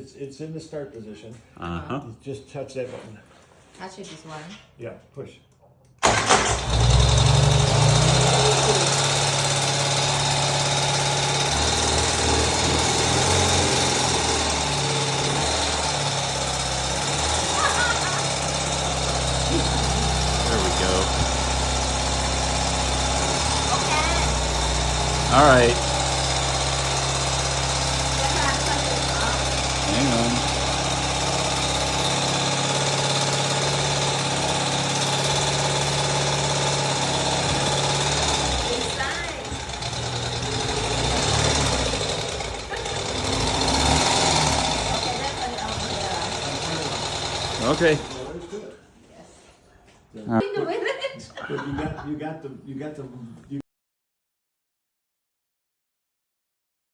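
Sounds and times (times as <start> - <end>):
motorcycle push-button starter: 6.0 - 7.2
motorcycle engine idling: 6.0 - 48.4.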